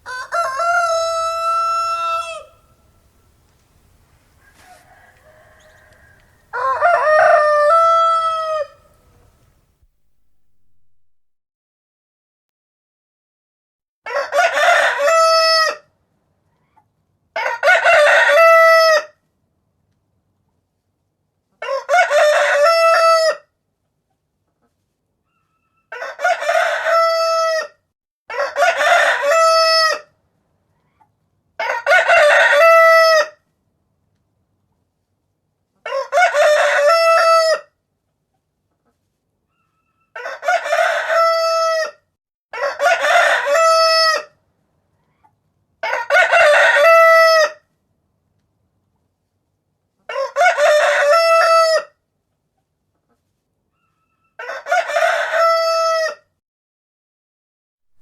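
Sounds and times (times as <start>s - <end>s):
rooster crowing: 0.0s - 3.0s, 4.4s - 9.3s, 14.1s - 15.8s, 17.4s - 19.1s, 21.6s - 23.4s, 25.9s - 30.1s, 31.6s - 33.3s, 35.9s - 37.7s, 39.8s - 44.3s, 45.8s - 47.6s, 50.1s - 51.9s, 54.0s - 56.3s.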